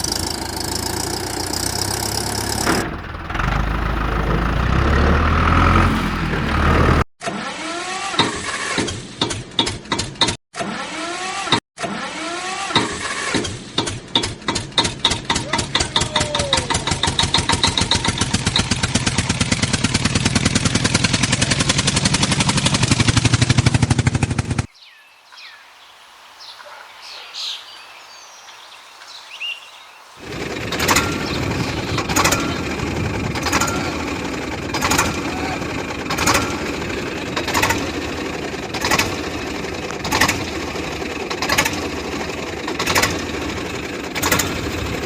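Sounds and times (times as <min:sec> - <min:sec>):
tractor motor pulsing: 0:00.0 - 0:07.1, 0:14.2 - 0:24.7, 0:30.2 - 0:45.0.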